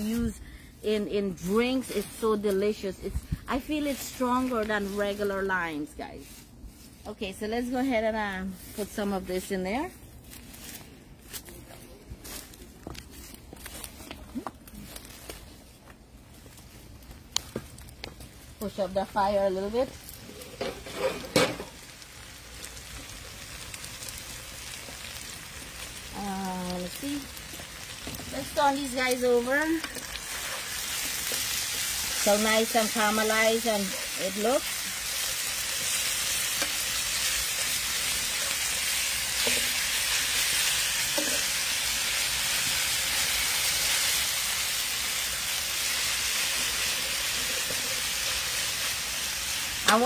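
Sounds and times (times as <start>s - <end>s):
chicken sizzling in oil: 20.2s - 50.0s.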